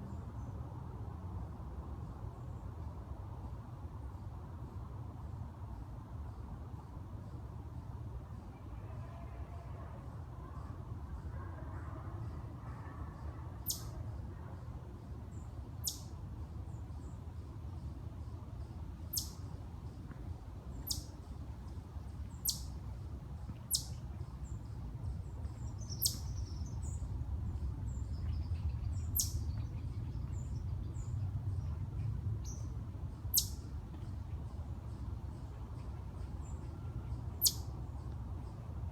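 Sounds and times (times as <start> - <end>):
high chirps of small animal: 13.6 - 13.9, 19.1 - 19.4, 20.8 - 21.1, 23.7 - 24.0, 25.8 - 26.6, 29.2 - 29.4, 33.3 - 33.6, 37.4 - 37.6
steady low rumble: 19.7 - 38.9.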